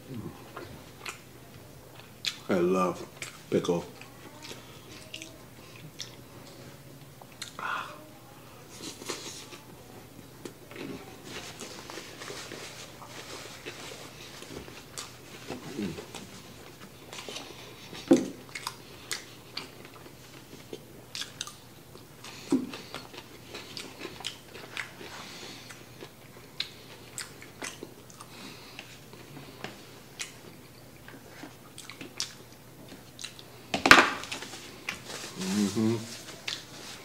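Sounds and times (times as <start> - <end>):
chewing and biting food: 13.0 - 33.6.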